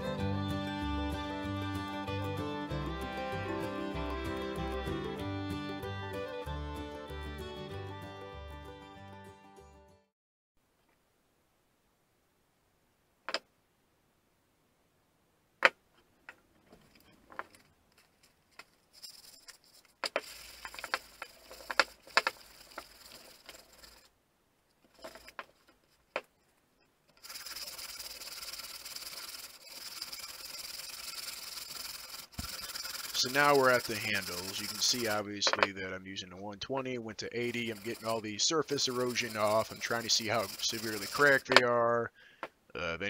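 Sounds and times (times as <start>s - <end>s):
sandpaper rubbing on wood: 19.0s - 24.1s, 27.2s - 35.3s, 37.4s - 41.5s.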